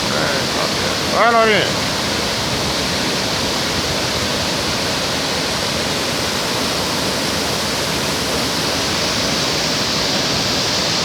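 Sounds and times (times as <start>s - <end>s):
waterfall roar: 0.0s - 11.0s.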